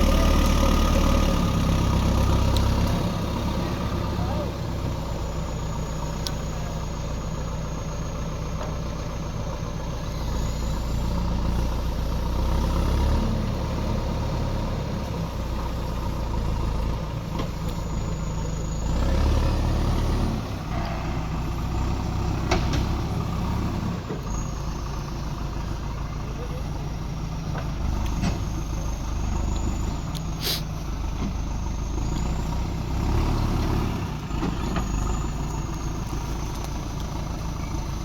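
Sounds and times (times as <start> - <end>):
backhoe diesel engine working: 0.0 - 38.0.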